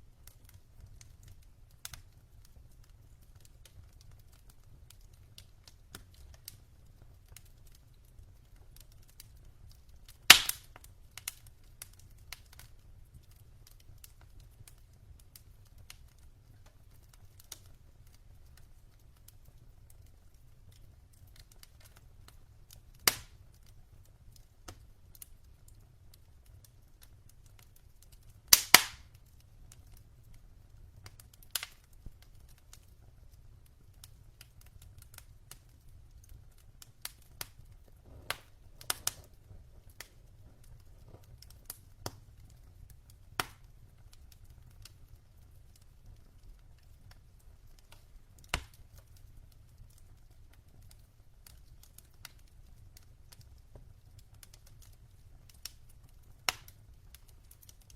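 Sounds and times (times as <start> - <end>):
wood fire crackling: 0.0 - 57.9
faint low rumble: 37.6 - 43.1.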